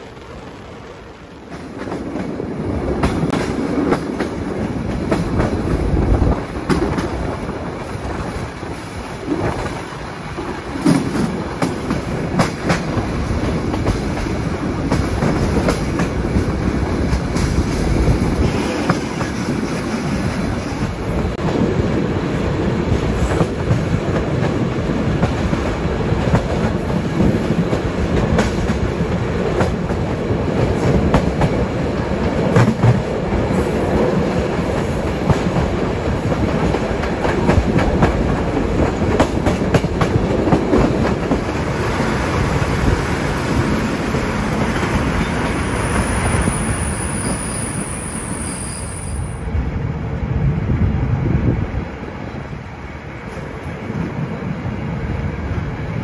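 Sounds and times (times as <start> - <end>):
train rumble: 0.0 - 56.0
train wheels clattering over rail joints: 10.7 - 20.9, 23.0 - 46.4.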